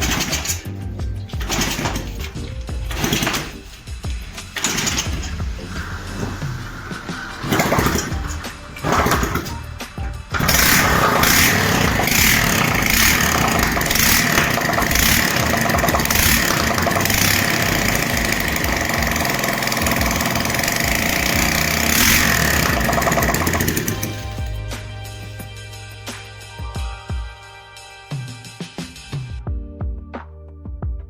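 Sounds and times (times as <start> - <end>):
moped engine starting and running: 0.0 - 26.5.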